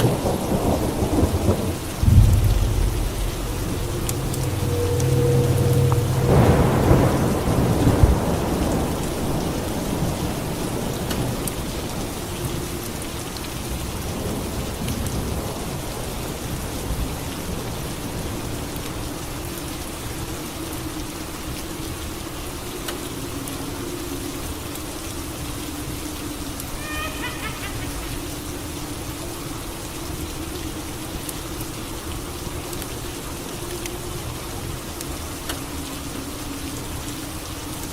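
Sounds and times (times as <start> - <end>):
steady falling rain: 0.0 - 37.9
thunder clap rumbling: 0.2 - 10.0.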